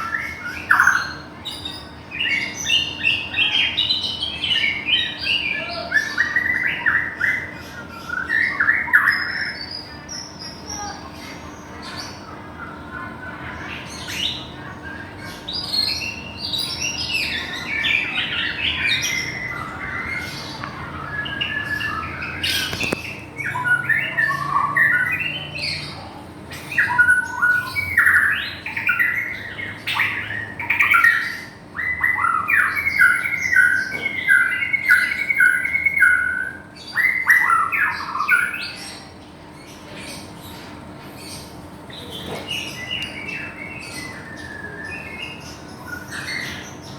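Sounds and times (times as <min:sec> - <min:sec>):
songbird singing varied song: 0:14.0 - 0:39.1, 0:41.4 - 0:46.9.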